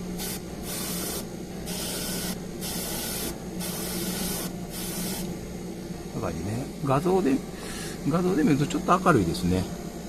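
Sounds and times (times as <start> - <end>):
paint spray hissing: 0.0 - 5.3
steady low hum: 0.0 - 10.0.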